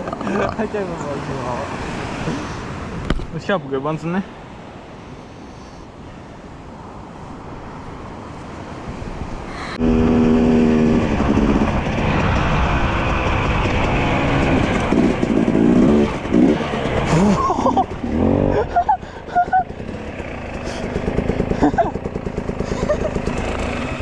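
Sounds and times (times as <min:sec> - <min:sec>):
dirt bike engine revving: 0:09.8 - 0:24.0.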